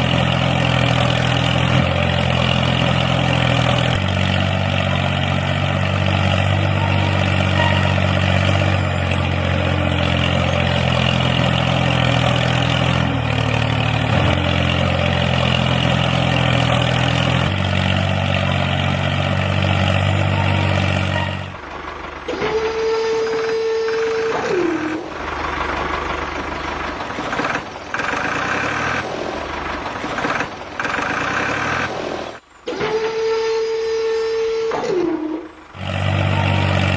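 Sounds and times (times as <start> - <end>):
engine-like droning hum: 0.0 - 36.9.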